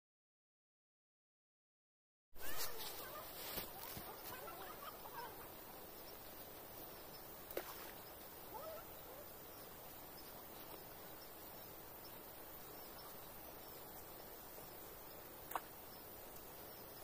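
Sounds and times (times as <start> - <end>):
bird calls chirping: 2.4 - 17.0
steady low hiss: 2.4 - 17.0.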